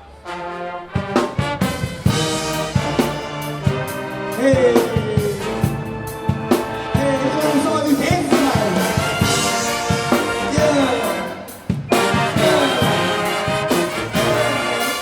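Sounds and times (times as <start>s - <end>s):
brass section sliding phrases: 0.0s - 15.0s
drum hits: 7.9s - 14.7s.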